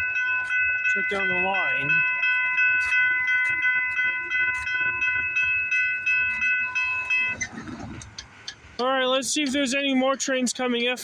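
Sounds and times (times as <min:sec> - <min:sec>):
level crossing warning bell: 0:00.0 - 0:07.7.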